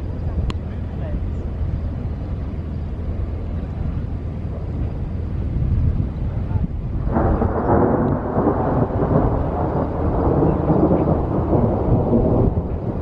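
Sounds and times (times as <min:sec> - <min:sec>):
crackling rumble of thunder: 0:06.8 - 0:13.0.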